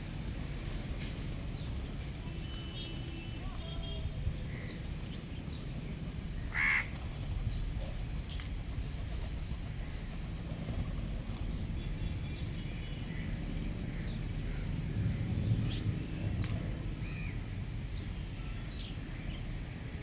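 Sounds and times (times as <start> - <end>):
low outdoor rumble: 0.0 - 20.0
loud bird call: 6.3 - 7.4.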